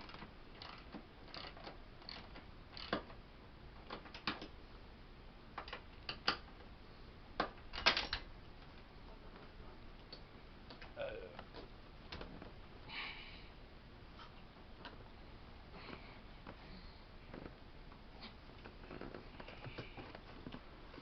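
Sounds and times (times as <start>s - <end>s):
hand tools clicking on metal frame: 0.0s - 3.1s.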